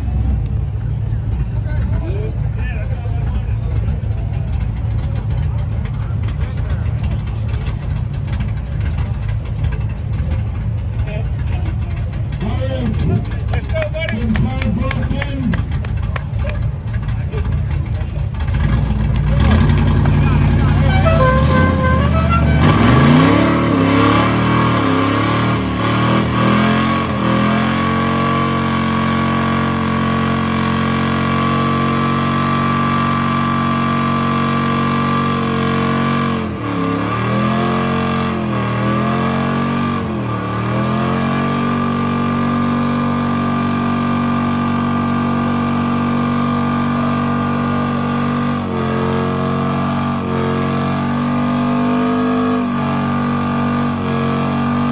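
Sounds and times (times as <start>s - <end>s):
car engine revving hard: 18.4s - 54.9s.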